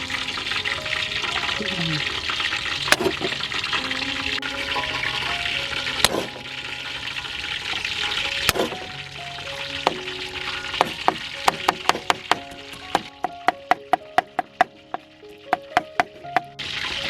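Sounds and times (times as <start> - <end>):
background music: 0.0 - 17.0
food sizzling in hot oil: 0.0 - 17.0
sharp knocks: 10.8 - 14.8.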